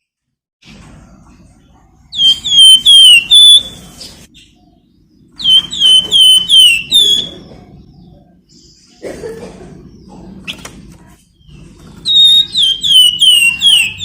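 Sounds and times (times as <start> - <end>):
songbird whistled calls: 2.1 - 4.6, 5.4 - 7.6, 11.4 - 14.0.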